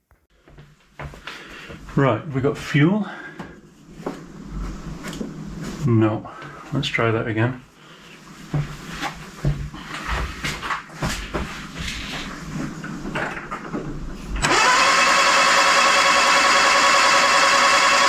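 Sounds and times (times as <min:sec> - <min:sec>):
starter motor cranking engine: 0:14.4 - 0:18.0.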